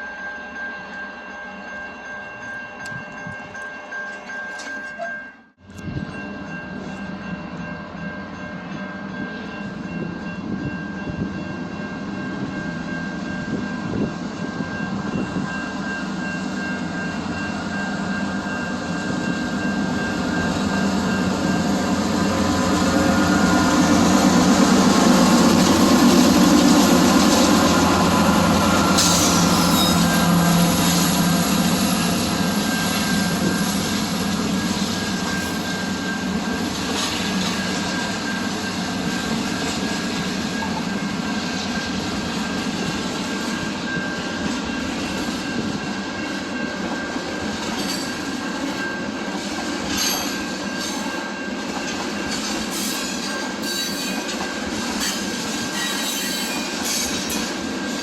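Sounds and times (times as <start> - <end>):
train wheel squeal on rails: 12.2 - 58.0.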